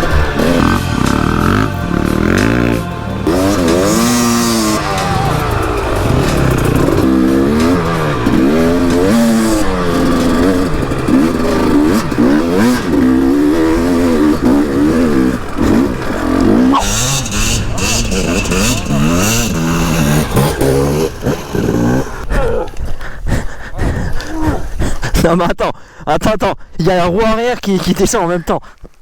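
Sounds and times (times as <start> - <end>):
motorcycle engine revving: 0.0 - 22.8.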